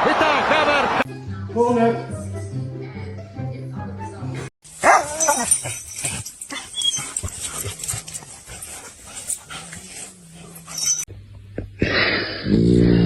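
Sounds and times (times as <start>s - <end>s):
dog making small sounds: 4.8s - 11.1s.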